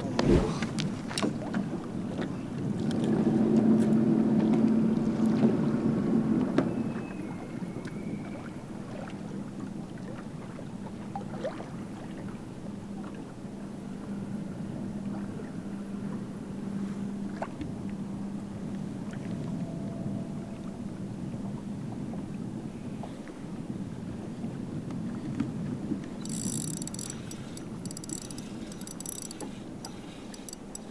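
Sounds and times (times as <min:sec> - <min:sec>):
wind noise: 0:00.0 - 0:01.4
water noise: 0:00.0 - 0:01.6, 0:25.9 - 0:30.9
boat motor humming: 0:25.9 - 0:30.9
small clicks and knocks: 0:26.2 - 0:30.9.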